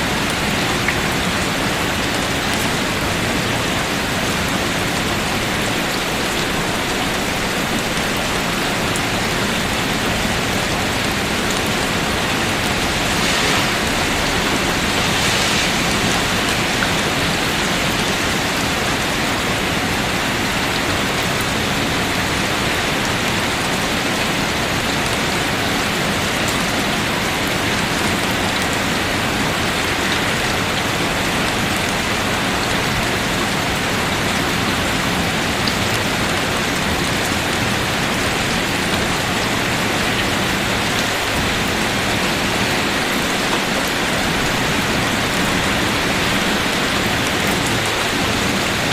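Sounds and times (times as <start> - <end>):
falling water hissing: 10.4 - 17.9.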